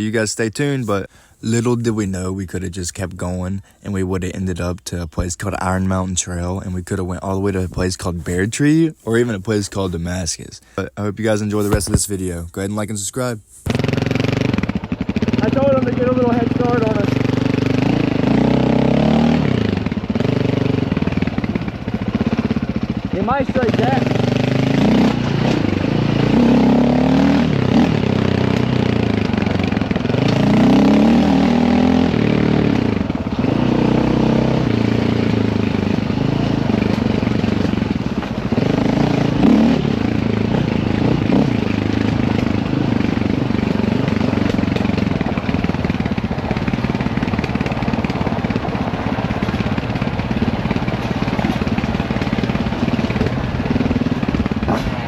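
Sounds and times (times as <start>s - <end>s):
dirt bike engine revving: 13.7s - 55.0s.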